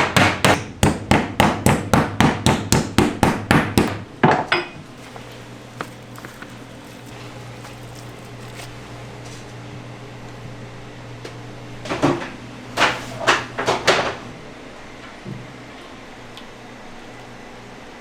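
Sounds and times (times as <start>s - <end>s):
steady machine hum: 2.6s - 11.8s.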